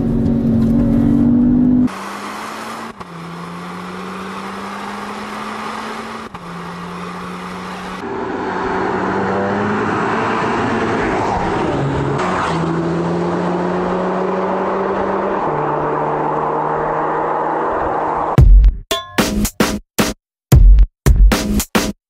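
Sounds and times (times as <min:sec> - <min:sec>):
car engine running: 0:00.0 - 0:08.1.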